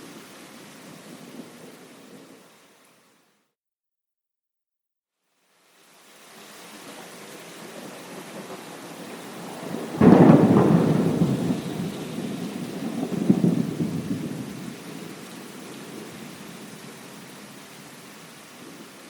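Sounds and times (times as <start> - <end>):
steady rain: 0.0 - 3.5, 5.2 - 19.0
thunder crack and rumble: 8.0 - 15.2.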